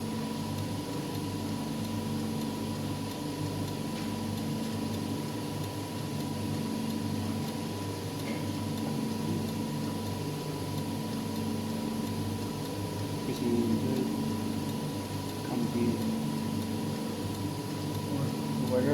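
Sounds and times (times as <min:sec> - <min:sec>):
wire bonding machine humming: 0:00.0 - 0:18.9.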